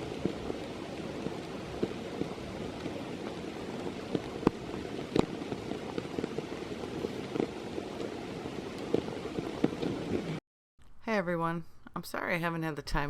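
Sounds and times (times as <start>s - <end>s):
heavy raindrops patting microphone: 0.0s - 10.4s
steady rain: 0.0s - 10.4s.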